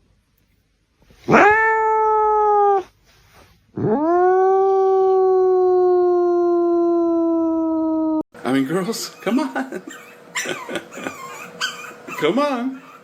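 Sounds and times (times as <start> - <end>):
dog howling: 1.3 - 2.9, 3.8 - 8.2.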